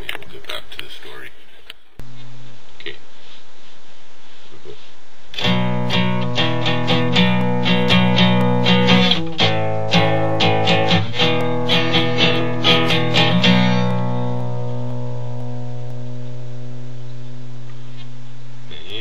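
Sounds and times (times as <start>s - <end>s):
held low guitar note: 5.4s - 18.0s
plucked guitar notes: 5.4s - 18.0s.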